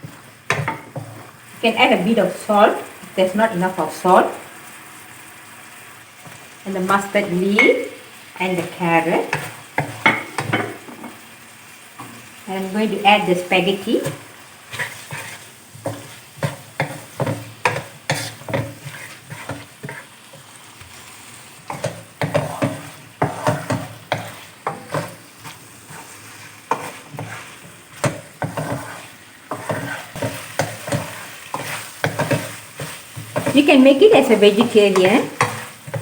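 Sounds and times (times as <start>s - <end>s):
spatula scraping a pan: 0.0s - 1.4s, 8.5s - 11.2s, 13.1s - 36.0s
frying sizzle: 0.0s - 36.0s.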